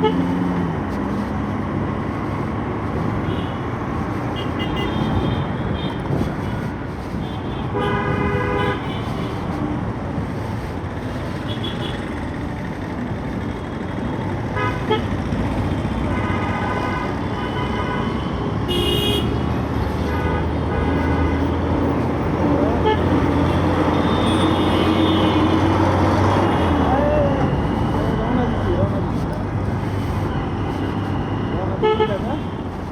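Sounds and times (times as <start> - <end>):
engine and road noise: 0.0 - 32.9
vehicle horns honking: 4.3 - 6.6, 7.2 - 9.5, 16.0 - 32.9.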